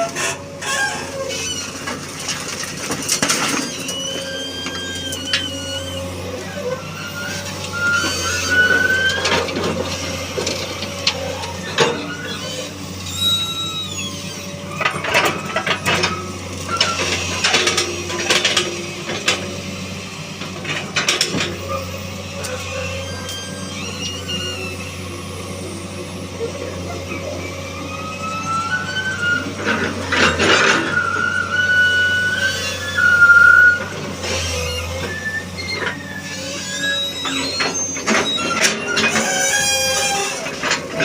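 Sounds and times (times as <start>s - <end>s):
short squeals: 0.0s - 2.1s, 3.2s - 18.2s, 21.6s - 41.0s
excavator diesel engine running: 0.0s - 41.0s
knocks and clatter of wooden pallets: 1.7s - 4.1s.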